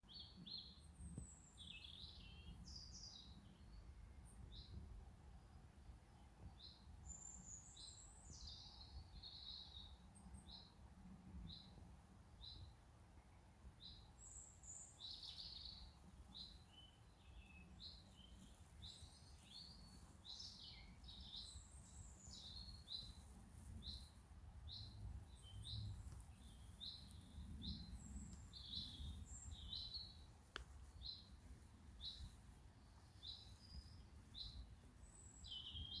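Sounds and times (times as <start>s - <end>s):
birds chirping: 14.2s - 36.0s.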